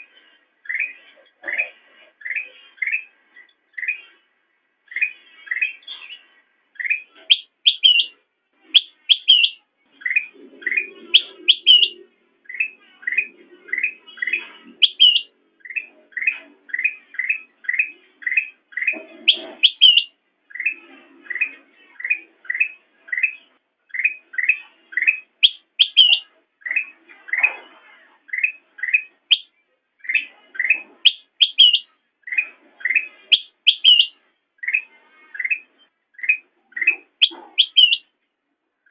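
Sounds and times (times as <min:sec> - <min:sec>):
bird chirping and whistling: 0:06.8 - 0:27.6, 0:28.3 - 0:38.1.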